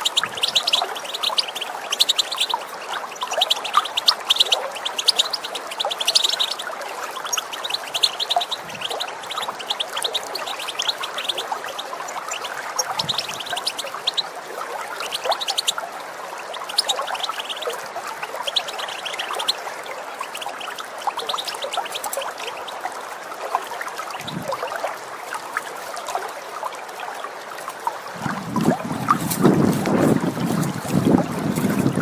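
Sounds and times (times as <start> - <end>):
goldfinch twittering: 0.0 - 15.8, 16.4 - 22.8
trickle of running water: 0.0 - 32.0.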